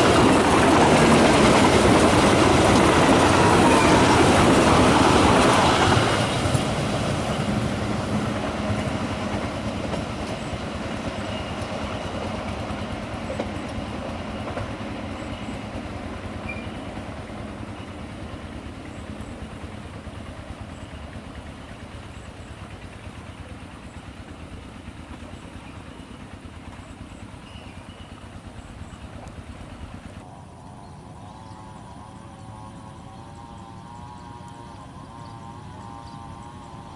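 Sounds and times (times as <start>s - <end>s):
train rumble and wheel noise: 0.0s - 36.9s.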